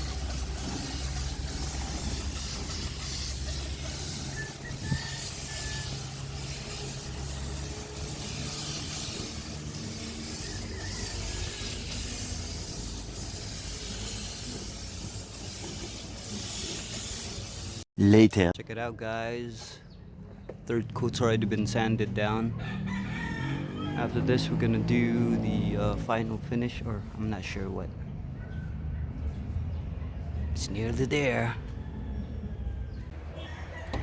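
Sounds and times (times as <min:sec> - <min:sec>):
air hissing: 0:00.0 - 0:17.9.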